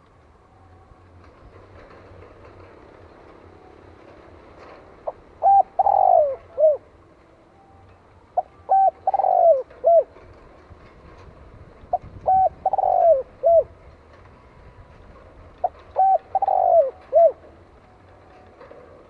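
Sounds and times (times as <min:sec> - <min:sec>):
dove cooing: 0:05.0 - 0:06.9, 0:08.3 - 0:10.4, 0:11.9 - 0:13.8, 0:15.6 - 0:17.6.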